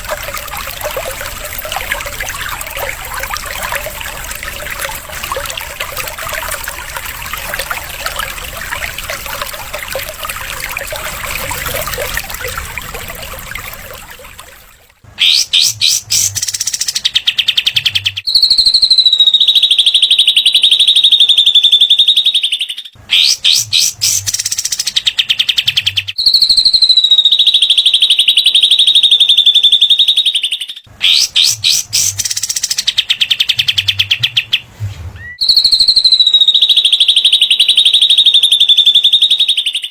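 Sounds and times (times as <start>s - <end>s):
songbird chattering and trills: 15.2s - 18.3s, 23.1s - 26.1s, 31.0s - 34.6s.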